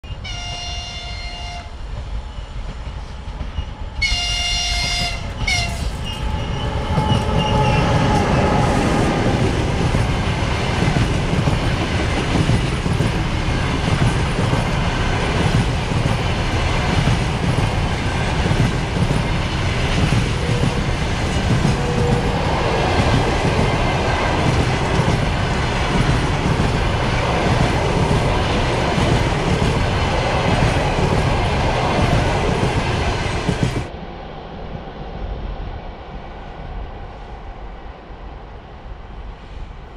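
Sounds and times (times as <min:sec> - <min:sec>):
train passing with rumble: 0:00.0 - 0:39.9
locomotive horn blasts: 0:00.2 - 0:01.7, 0:04.0 - 0:05.9.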